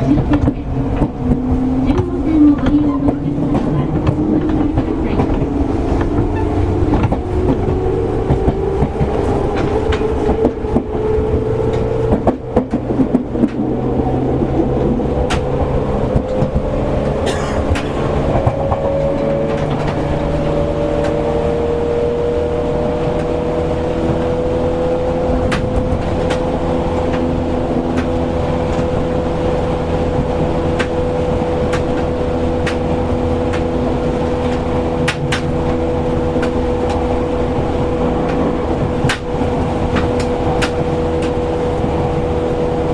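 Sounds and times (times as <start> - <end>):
train running rumble: 0.0 - 42.9
train traction motor whine: 0.0 - 42.9
wheels clicking over rail joints: 0.0 - 42.9.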